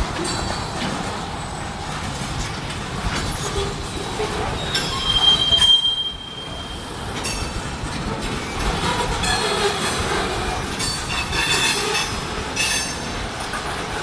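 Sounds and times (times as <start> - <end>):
freight train rolling past: 0.0 - 14.0
wheel squealing on rail: 0.0 - 14.0.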